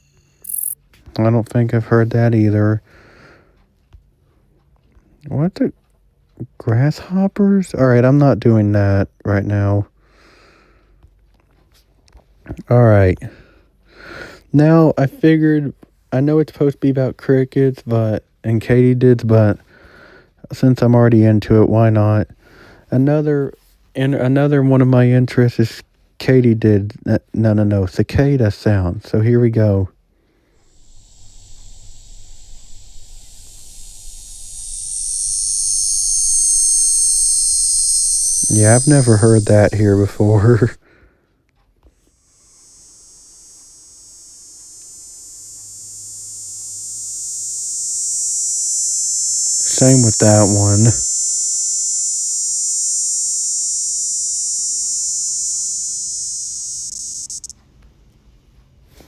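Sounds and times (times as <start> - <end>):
cicada buzzing: 0.0 - 0.8, 30.6 - 40.8, 42.1 - 57.5.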